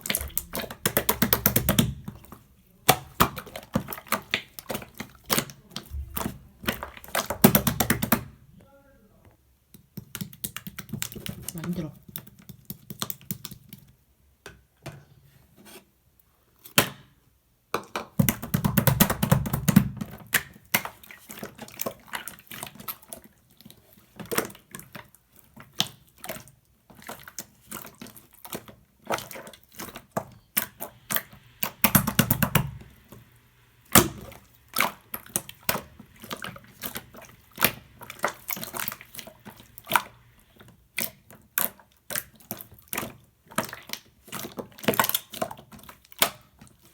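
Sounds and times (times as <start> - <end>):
slime squelching: 0.0 - 8.4, 18.3 - 46.9.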